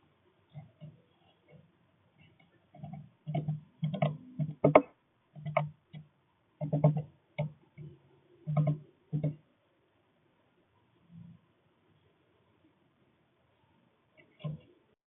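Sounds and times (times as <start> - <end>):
birds tapping on bird feeder: 2.3 - 9.4.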